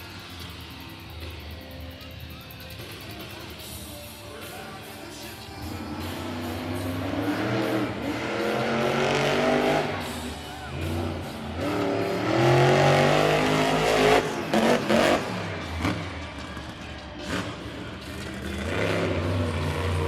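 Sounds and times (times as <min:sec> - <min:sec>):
truck engine revving hard: 0:05.6 - 0:20.0.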